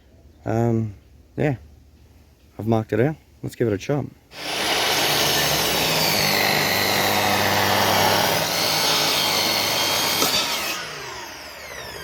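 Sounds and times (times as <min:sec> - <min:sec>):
electric saw cutting wood: 0:04.3 - 0:12.0.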